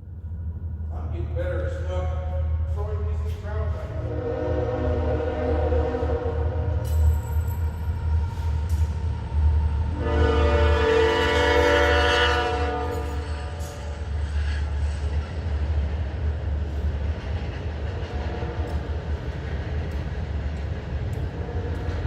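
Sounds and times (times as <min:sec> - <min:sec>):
air horn chord: 0:10.0 - 0:13.1.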